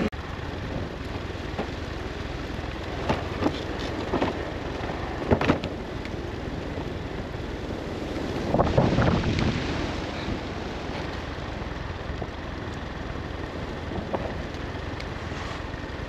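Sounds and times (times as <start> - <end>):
steady wind: 0.0 - 16.0
vehicle engine rumble: 0.0 - 16.0
knocks and clunks: 5.2 - 5.7.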